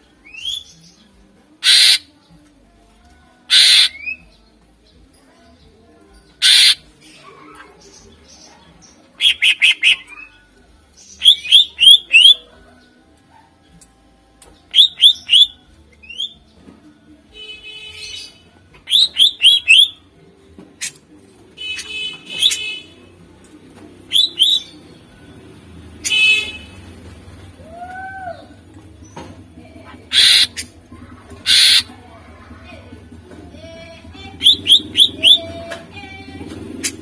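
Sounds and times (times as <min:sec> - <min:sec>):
bird whistling and chattering: 0:01.6 - 0:02.1, 0:03.5 - 0:04.2, 0:06.4 - 0:06.8, 0:09.2 - 0:10.4, 0:11.2 - 0:12.4, 0:14.7 - 0:16.4, 0:18.8 - 0:20.0, 0:22.4 - 0:22.7, 0:24.1 - 0:24.8, 0:30.1 - 0:30.8, 0:31.4 - 0:31.9, 0:34.4 - 0:35.6.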